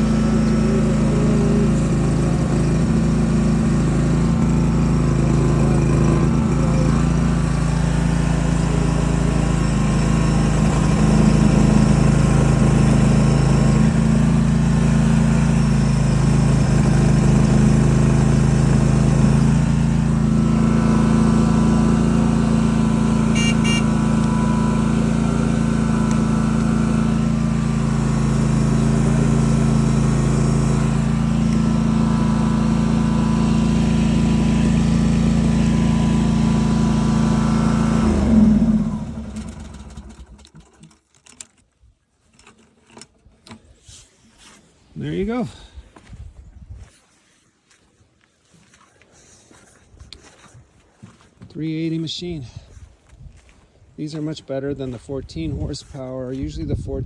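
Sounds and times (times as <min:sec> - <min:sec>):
loader engine running: 0:00.0 - 0:41.5.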